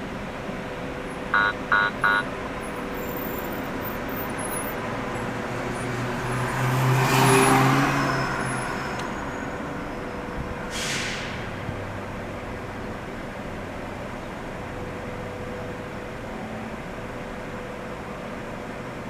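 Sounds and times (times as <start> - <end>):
car road and engine noise: 0.0 - 19.0
vehicle passing: 5.0 - 9.0
short hiss: 10.7 - 11.4.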